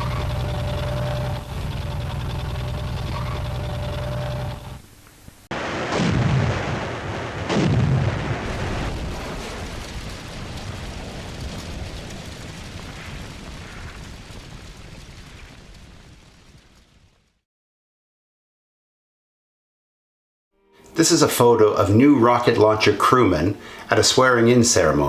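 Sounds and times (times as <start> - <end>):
long rumbling trail of noise: 0.0 - 5.5, 8.1 - 15.7
heavy explosions: 5.5 - 17.4.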